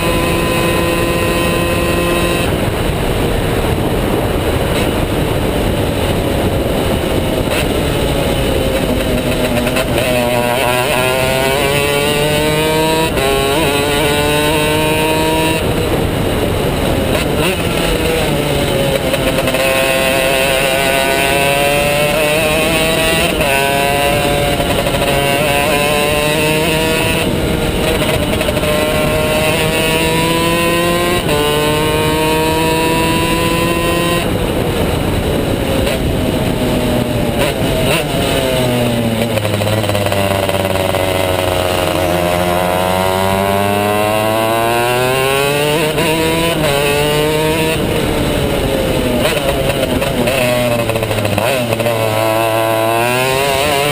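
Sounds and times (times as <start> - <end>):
kart engine at full throttle: 0.0 - 53.9.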